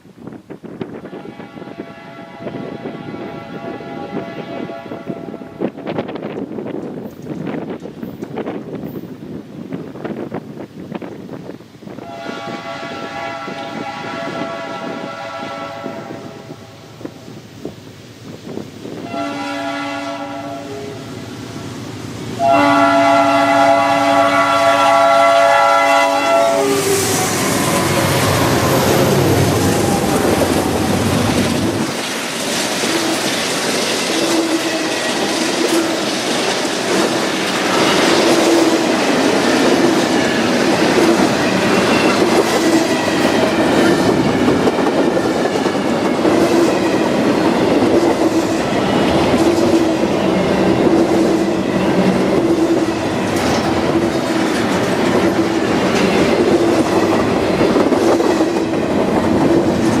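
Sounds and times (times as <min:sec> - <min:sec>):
train wheels clattering over rail joints: 0:29.6 - 1:00.0.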